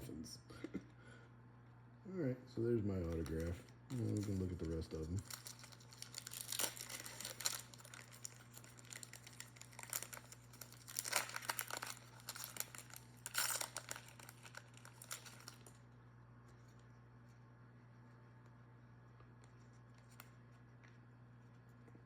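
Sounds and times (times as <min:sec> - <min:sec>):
steady low hum: 0:00.0 - 0:22.0
card packaging crinkling: 0:02.9 - 0:15.8.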